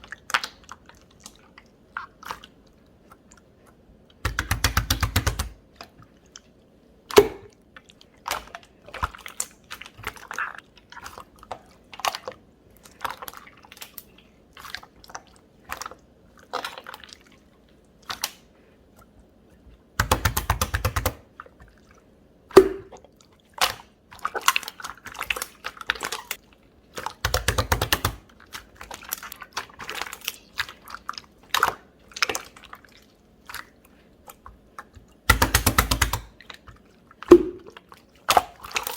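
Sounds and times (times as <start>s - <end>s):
slime squished by hand: 22.5s - 38.9s.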